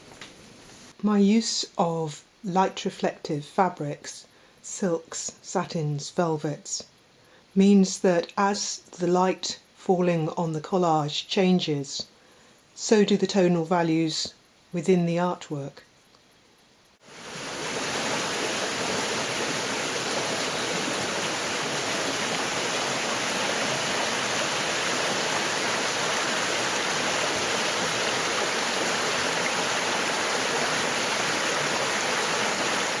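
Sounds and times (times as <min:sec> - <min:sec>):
waterfall rushing: 0:17.0 - 0:33.0.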